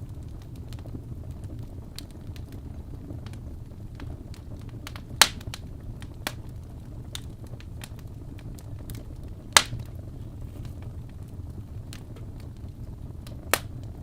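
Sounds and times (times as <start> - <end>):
fire rumbling in fireplace: 0.0 - 14.0
small fire crackles: 0.0 - 14.0
loud sharp pop: 9.6 - 9.8.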